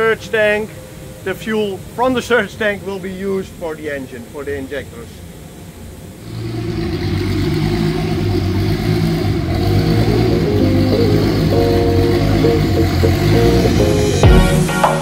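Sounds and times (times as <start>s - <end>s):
car engine running: 6.4s - 14.3s.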